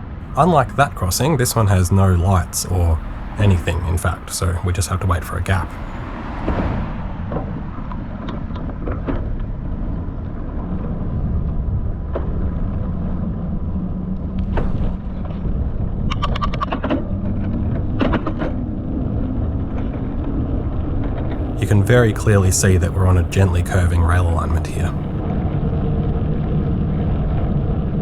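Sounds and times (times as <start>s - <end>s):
road traffic rumble: 0.3s - 7.8s, 21.4s - 25.2s.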